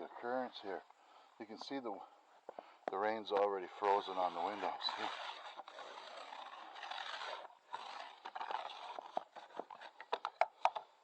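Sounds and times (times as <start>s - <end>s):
ice scraper scraping window: 3.2s - 10.0s.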